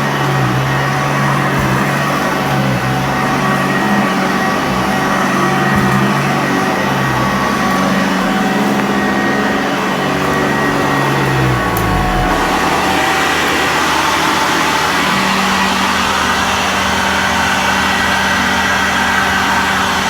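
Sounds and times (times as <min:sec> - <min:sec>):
vacuum cleaner running over carpet: 0:00.0 - 0:20.0.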